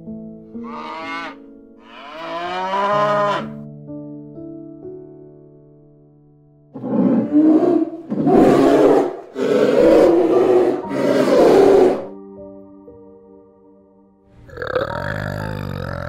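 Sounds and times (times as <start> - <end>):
large animal harsh calls: 0.6 - 3.6, 6.8 - 12.1.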